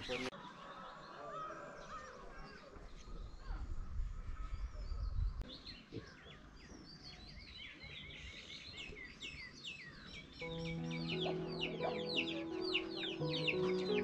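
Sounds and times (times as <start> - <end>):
outdoor background noise: 0.0 - 14.0
small birds chirping: 0.0 - 14.0
music: 10.4 - 14.0.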